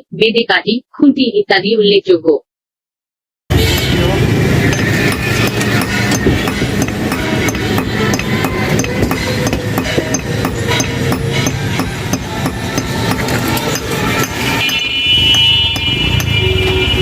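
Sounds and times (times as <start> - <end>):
hammer striking iron on anvil: 3.5 - 16.5.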